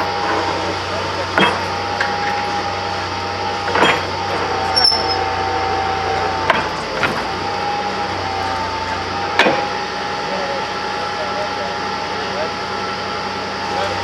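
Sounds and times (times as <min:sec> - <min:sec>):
drilling machine whining: 0:00.0 - 0:14.0
sharp metallic knocks: 0:01.3 - 0:02.6, 0:03.5 - 0:05.4, 0:06.1 - 0:07.6.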